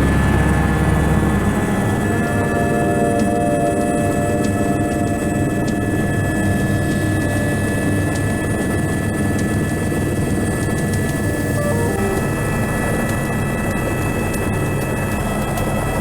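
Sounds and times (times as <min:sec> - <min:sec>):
helicopter rotor and engine: 0:00.0 - 0:16.0
high whine: 0:11.0 - 0:13.2.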